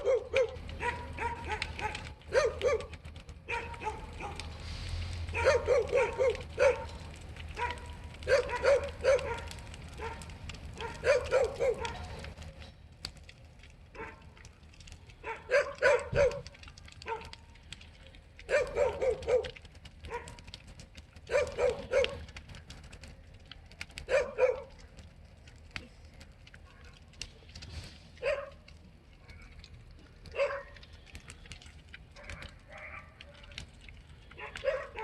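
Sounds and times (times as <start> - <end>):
dog barking: 0.0 - 4.5, 5.3 - 12.2, 14.0 - 14.2, 15.2 - 17.4, 18.5 - 20.4, 21.3 - 22.2, 24.1 - 24.8, 28.2 - 28.6, 30.3 - 30.8, 32.2 - 33.4, 34.4 - 35.0.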